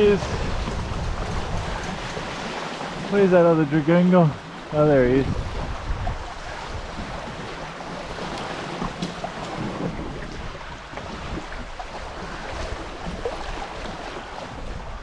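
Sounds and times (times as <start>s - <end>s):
wind noise on microphone: 0.0s - 3.4s, 4.3s - 15.0s
water rushing along hulls: 0.0s - 15.0s.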